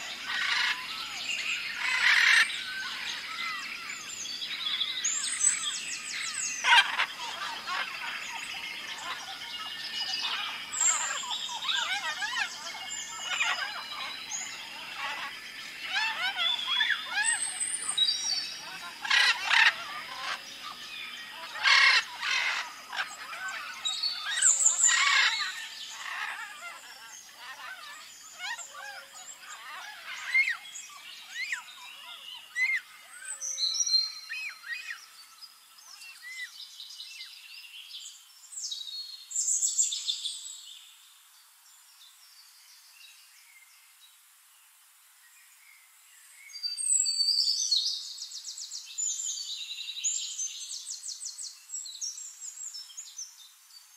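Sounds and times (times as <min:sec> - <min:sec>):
harsh bird calls: 0:00.0 - 0:35.0
birds chirping and calling: 0:00.0 - 0:36.6.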